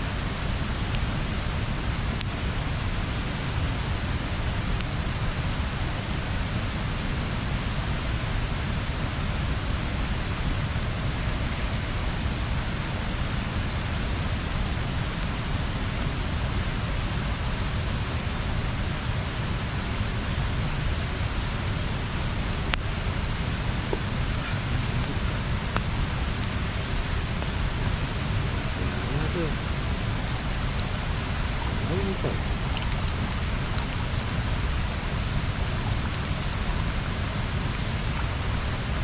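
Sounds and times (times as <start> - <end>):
bonfire burning hiss: 0.0 - 39.0
fire pops: 22.6 - 36.5.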